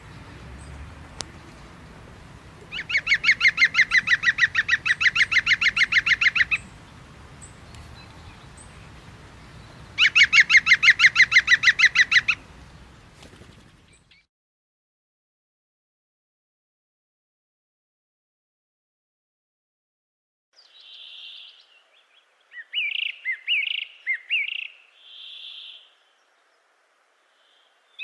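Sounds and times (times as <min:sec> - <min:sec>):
bird calling fast repeated notes: 0:02.7 - 0:06.7, 0:10.0 - 0:12.4.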